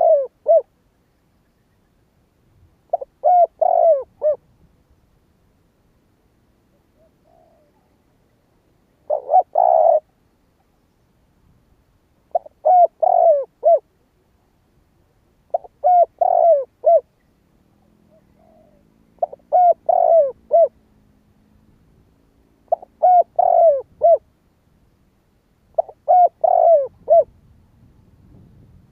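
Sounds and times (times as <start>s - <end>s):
dove cooing: 0.0s - 0.7s, 2.9s - 4.4s, 6.7s - 8.4s, 9.0s - 10.2s, 12.3s - 13.9s, 15.5s - 20.8s, 22.6s - 24.3s, 25.7s - 27.4s.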